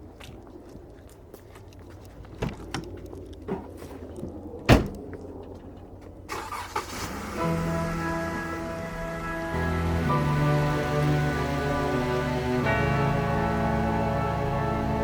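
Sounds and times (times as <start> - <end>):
low vehicle rumble: 0.0 - 15.0
music with held chords: 7.2 - 15.0.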